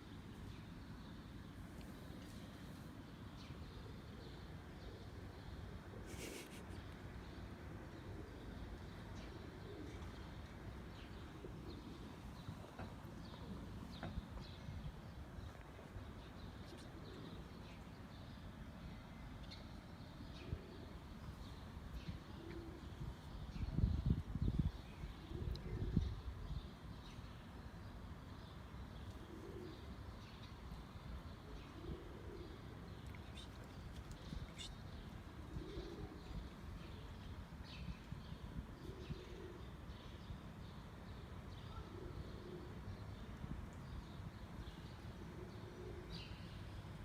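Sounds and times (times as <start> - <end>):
pigeons cooing: 22.3 - 23.0, 25.3 - 26.1, 29.1 - 30.0, 31.4 - 37.0, 38.8 - 39.9, 41.7 - 42.9, 45.1 - 46.3
small birds chirping: 31.7 - 40.1.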